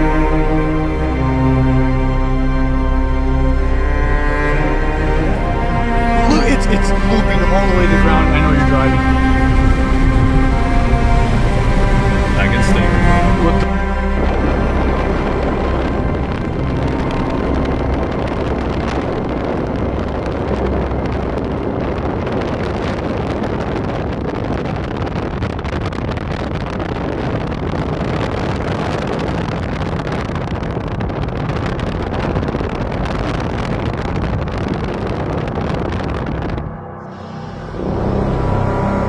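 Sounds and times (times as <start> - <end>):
wind buffeting microphone: 0.0 - 39.0
moving vehicle rumble: 2.8 - 25.2.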